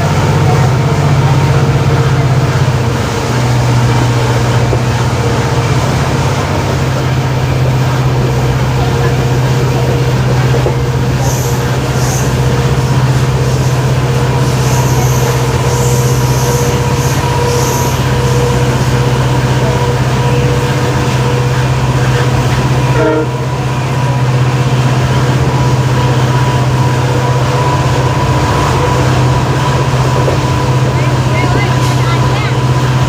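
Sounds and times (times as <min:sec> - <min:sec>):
diesel locomotive engine hum: 0:00.0 - 0:33.0
rail running noise: 0:00.0 - 0:33.0.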